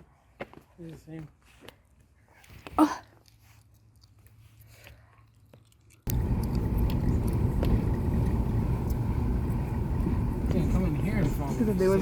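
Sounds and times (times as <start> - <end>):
car road and wind noise: 6.1 - 12.0.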